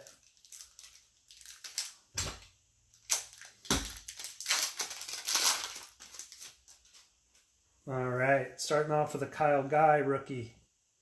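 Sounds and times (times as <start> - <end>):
wrapper crinkling and tearing: 0.0 - 7.1.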